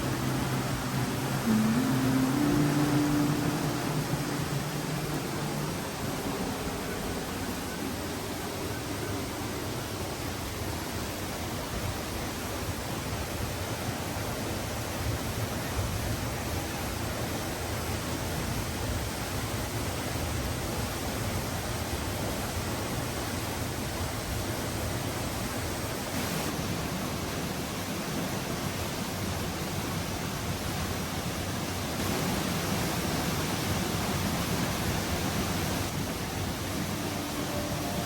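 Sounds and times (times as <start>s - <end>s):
waterfall rushing: 0.0s - 10.4s, 26.0s - 38.0s.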